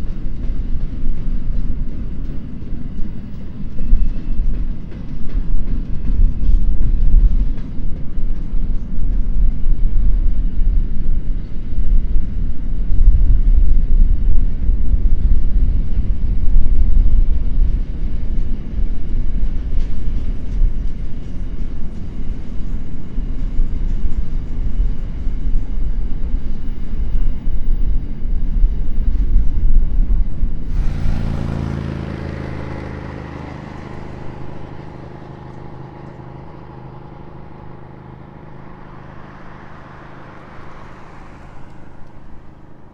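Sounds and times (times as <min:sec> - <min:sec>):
freight train wagons rumbling past: 0:00.0 - 0:42.9
wheels clattering on rails: 0:00.0 - 0:42.9
pitched engine drone: 0:19.2 - 0:42.9.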